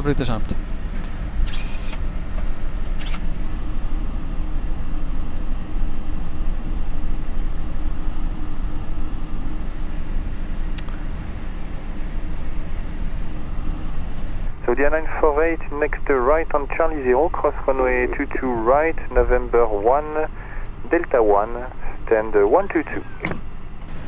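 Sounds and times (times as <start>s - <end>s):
cockpit rumble: 0.0s - 14.5s
steady hum: 0.0s - 23.0s, 23.6s - 24.0s.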